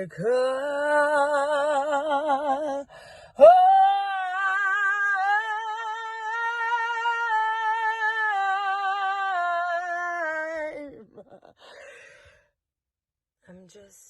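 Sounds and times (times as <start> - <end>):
faint breath: 2.9 - 3.4, 11.6 - 12.6
woman singing long vibrato note: 3.4 - 10.9.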